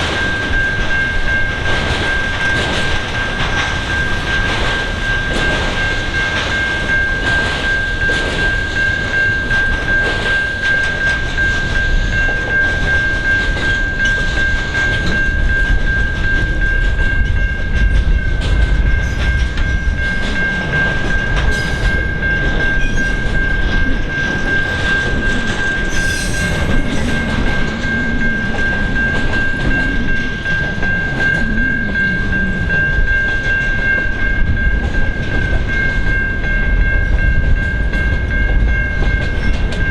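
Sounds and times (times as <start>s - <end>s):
train wagons rumbling: 0.0s - 39.9s
train wheels clattering: 0.0s - 39.9s
high-pitched squeal: 25.5s - 33.1s.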